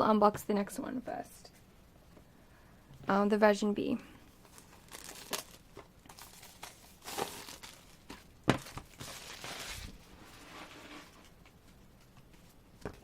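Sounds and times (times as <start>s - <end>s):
plastic packaging crinkling and tearing: 4.4s - 10.1s.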